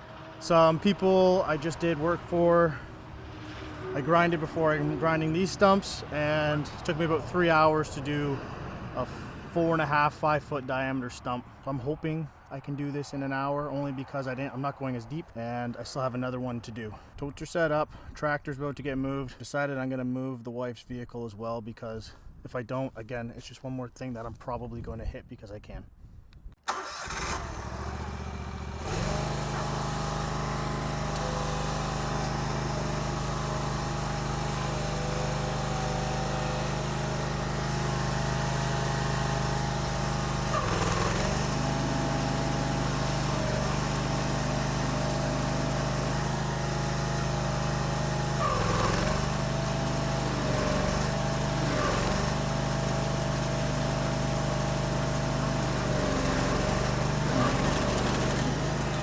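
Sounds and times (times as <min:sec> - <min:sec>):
engine starting and running: 0:00.0 - 0:07.4, 0:26.6 - 0:59.0.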